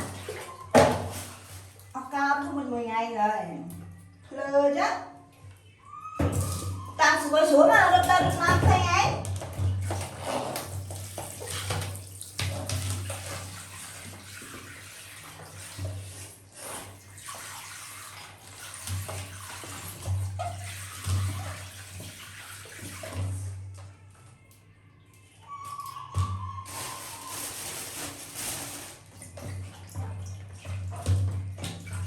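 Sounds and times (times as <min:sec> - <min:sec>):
water splashing and running: 0:00.0 - 0:02.1, 0:07.5 - 0:23.7, 0:26.6 - 0:32.0.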